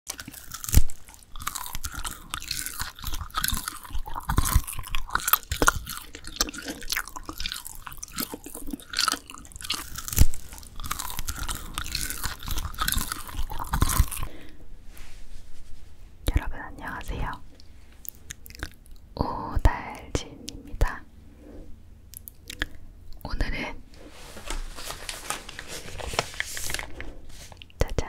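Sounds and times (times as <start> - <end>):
chewing and crunching: 0.1 - 14.6, 17.2 - 19.2, 22.1 - 23.2.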